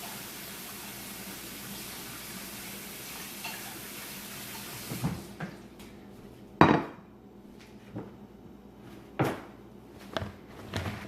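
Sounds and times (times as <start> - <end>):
dishware clattering: 3.2 - 3.8.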